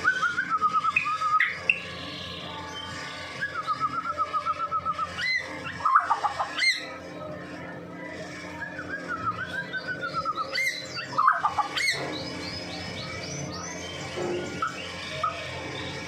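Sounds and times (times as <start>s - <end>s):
bird upward-sweeping whistles: 0.0s - 6.9s, 8.6s - 12.6s
bird chattering song: 0.0s - 7.0s, 8.6s - 16.0s.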